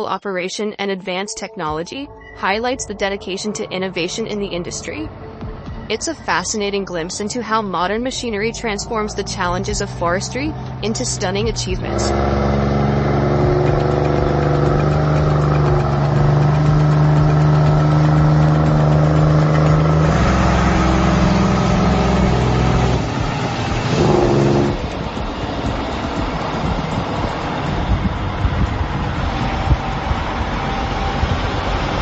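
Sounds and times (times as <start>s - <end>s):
heavy diesel engine running: 4.0s - 32.0s.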